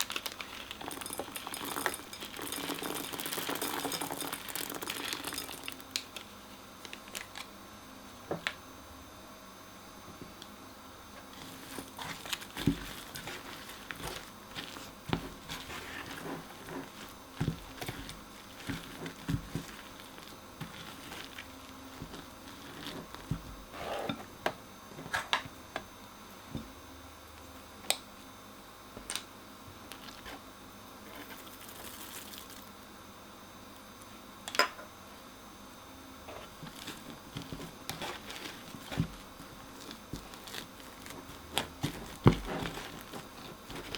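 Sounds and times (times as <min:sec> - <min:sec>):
slime crackling and squishing: 0:00.0 - 0:06.0, 0:11.4 - 0:23.5, 0:36.6 - 0:43.9.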